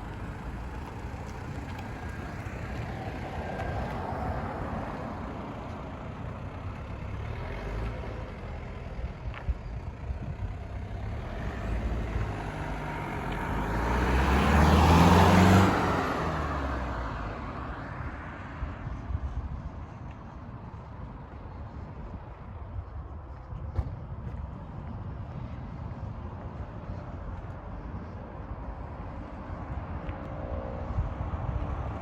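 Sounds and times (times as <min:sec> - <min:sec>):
vehicle driving past: 0:10.8 - 0:17.8.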